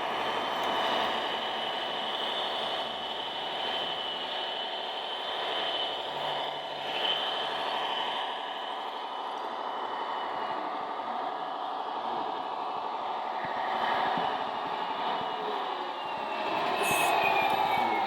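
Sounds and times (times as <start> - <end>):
high motor whine: 13.2 - 18.0.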